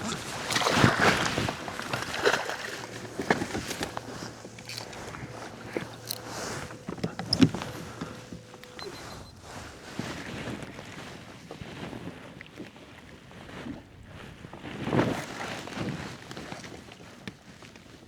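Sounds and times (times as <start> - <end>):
water sloshing and splashing: 0.0 - 9.3.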